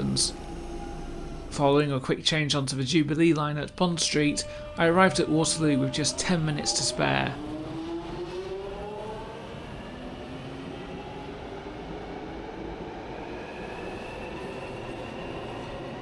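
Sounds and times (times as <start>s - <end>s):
train traction motors whining: 0.0s - 10.3s
steady train rumble: 0.0s - 16.0s.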